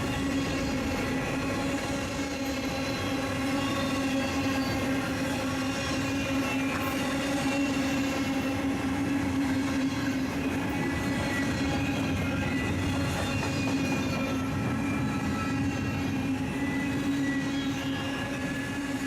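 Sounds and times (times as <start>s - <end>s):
freight train rumbling: 0.0s - 19.0s.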